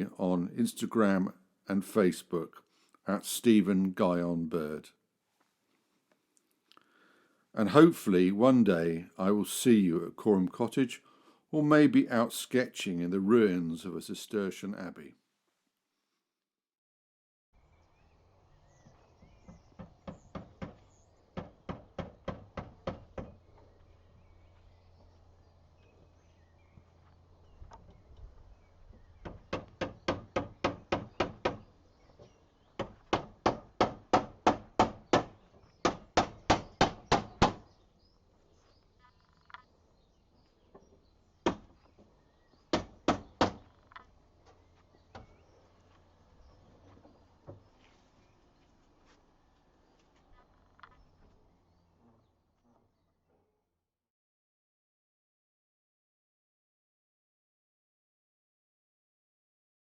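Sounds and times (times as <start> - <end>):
sharp evenly spaced knocks: 19.5 - 23.4, 29.2 - 37.7, 40.7 - 44.1.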